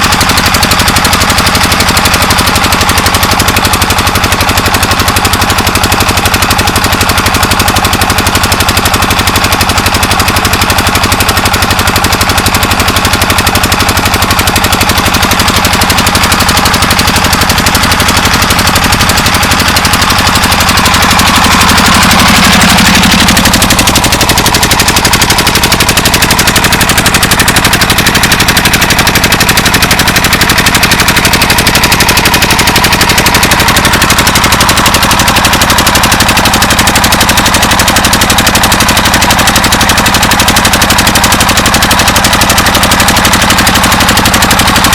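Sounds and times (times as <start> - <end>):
diesel pump engine running: 0.0 - 44.9.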